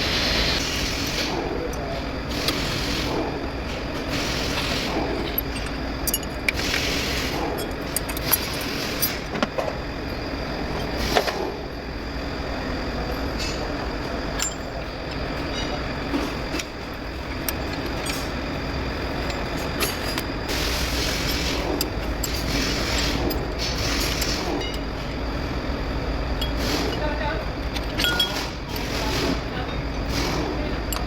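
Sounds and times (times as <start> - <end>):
hand tools clinking on metal: 26.4 - 29.0.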